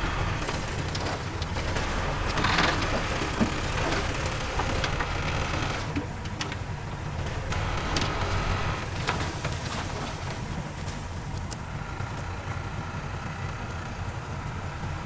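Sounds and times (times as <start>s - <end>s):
dirt and debris crunching: 0.0s - 12.4s
diesel machine engine rumbling: 0.0s - 15.0s.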